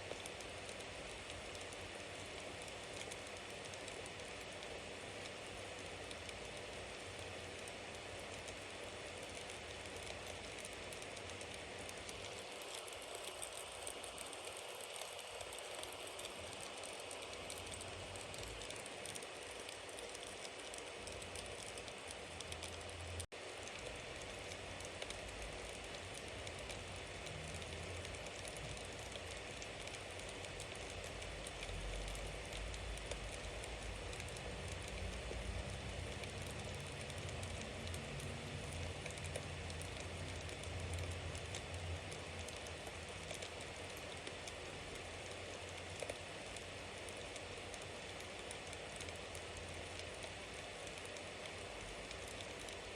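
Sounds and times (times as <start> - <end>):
wood fire crackling: 0.0 - 52.9.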